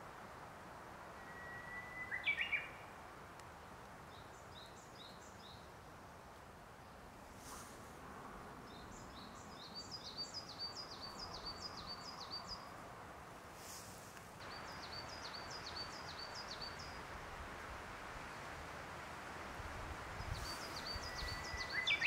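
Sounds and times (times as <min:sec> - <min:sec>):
outdoor background hiss: 0:00.0 - 0:22.0
songbird singing high notes: 0:01.2 - 0:02.8, 0:20.3 - 0:22.0.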